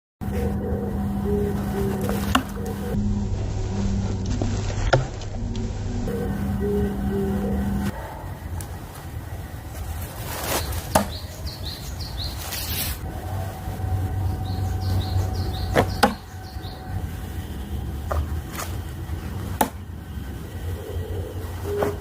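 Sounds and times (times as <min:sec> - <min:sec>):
birds chirping: 0:00.2 - 0:03.0, 0:06.0 - 0:22.0
steady low rumble: 0:00.2 - 0:22.0
knives striking wooden target: 0:10.9 - 0:11.1, 0:19.6 - 0:19.8.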